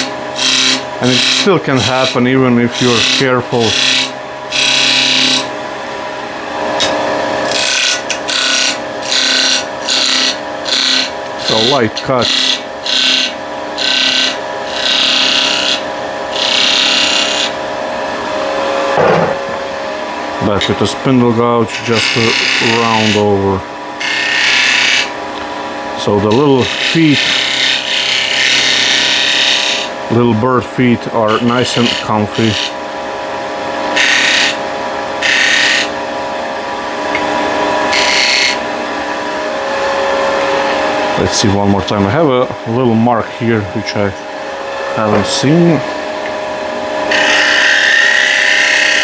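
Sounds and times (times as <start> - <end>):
gouge scraping spinning wood: 0.0 - 5.5, 7.4 - 17.6, 20.8 - 25.2, 26.0 - 30.4, 31.2 - 32.8
lathe running hum: 0.0 - 49.0.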